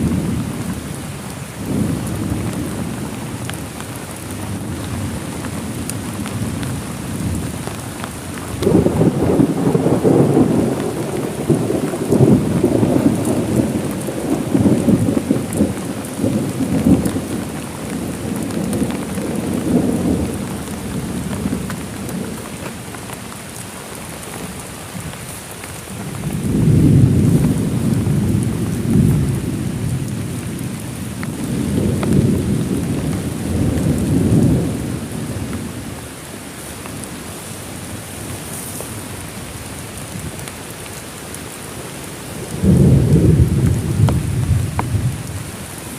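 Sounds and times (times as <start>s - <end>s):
heavy rain falling: 0.0s - 45.9s
rolling thunder: 8.5s - 22.4s, 26.1s - 35.6s, 42.5s - 45.4s.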